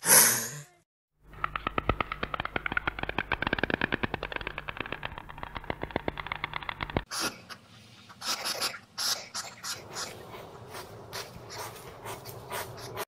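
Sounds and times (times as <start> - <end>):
stork bill-clattering: 1.3 - 7.1
hedgehog sniffing huffs: 7.1 - 13.0.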